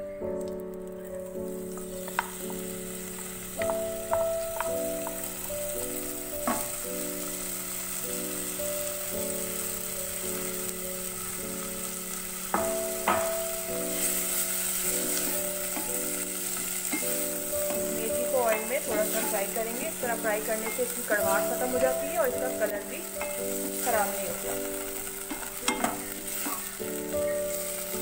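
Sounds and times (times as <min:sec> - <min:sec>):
soft background music: 0:00.0 - 0:28.0
leaves sizzling in hot oil: 0:00.2 - 0:28.0
wooden spatula knocking on pan: 0:01.7 - 0:05.3, 0:06.4 - 0:06.8, 0:12.5 - 0:13.6, 0:15.1 - 0:27.7.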